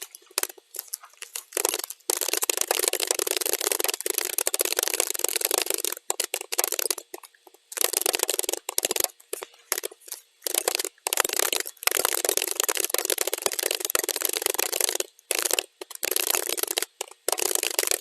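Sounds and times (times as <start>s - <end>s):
computer keyboard typing: 0.0s - 18.0s.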